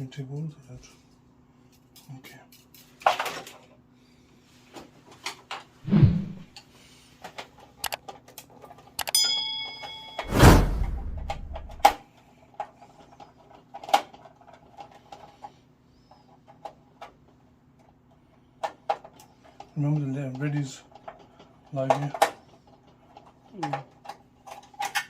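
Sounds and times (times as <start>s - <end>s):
tools clicking and knocking: 7.8s - 10.1s, 23.2s - 25.0s
ringing metallic clink: 9.0s - 10.3s
metal scrape: 10.2s - 11.9s.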